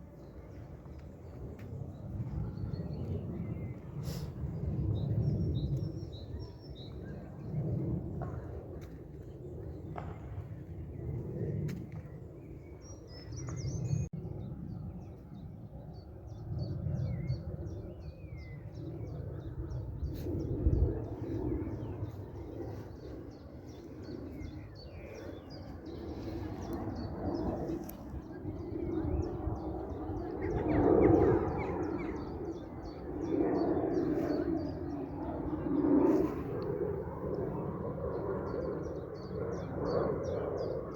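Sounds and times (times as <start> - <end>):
low rumbling noise: 18.7 - 37.9.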